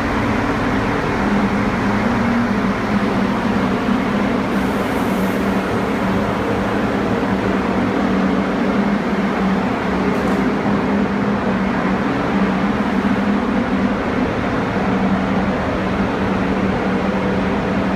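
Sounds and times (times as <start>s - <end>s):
steady mechanical hum: 0.0s - 17.9s.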